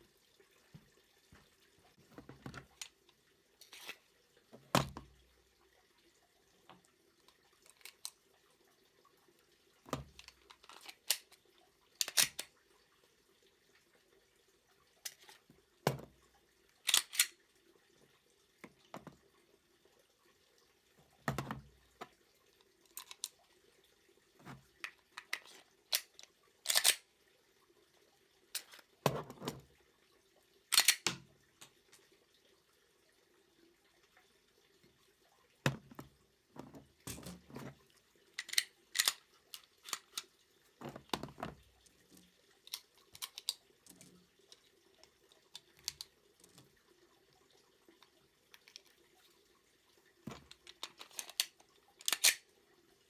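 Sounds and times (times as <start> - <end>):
pistol metallic clicks: 16.9 - 17.3, 30.7 - 31.1, 52.1 - 52.4.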